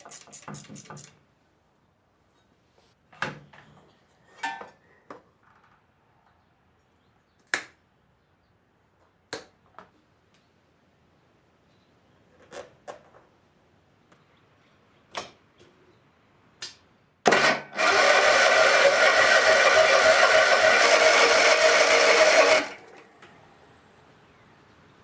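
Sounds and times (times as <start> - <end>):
electric starter cranking engine: 17.3 - 23.1.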